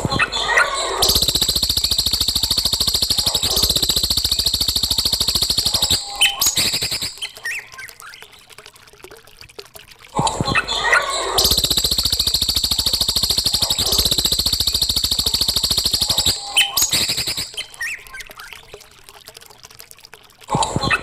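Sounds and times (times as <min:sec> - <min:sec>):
bird whistled notes: 0:01.0 - 0:07.4, 0:11.4 - 0:18.2
bird rattling trill: 0:01.0 - 0:07.6, 0:11.4 - 0:18.1.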